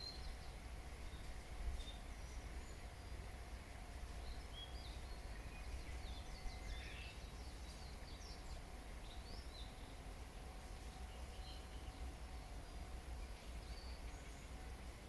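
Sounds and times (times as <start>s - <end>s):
small birds chirping: 4.2s - 10.0s, 10.6s - 14.6s.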